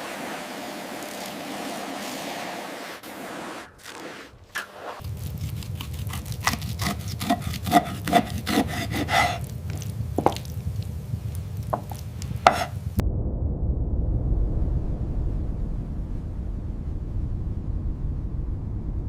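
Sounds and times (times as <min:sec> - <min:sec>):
hand scrubbing and scraping: 0:00.0 - 0:10.6, 0:11.7 - 0:12.8
steady low rumble: 0:04.4 - 0:19.0.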